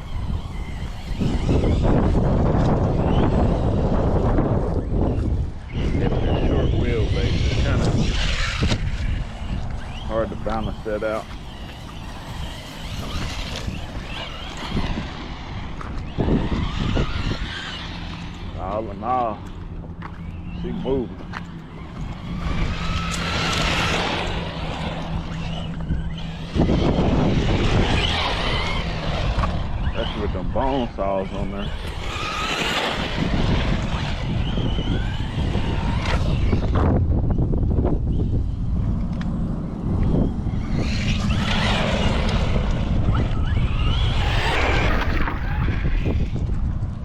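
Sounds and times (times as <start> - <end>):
tyres on ground: 0.0 - 36.7, 38.2 - 47.0
electric motor whining: 0.0 - 47.0
rush of noise: 31.3 - 47.0.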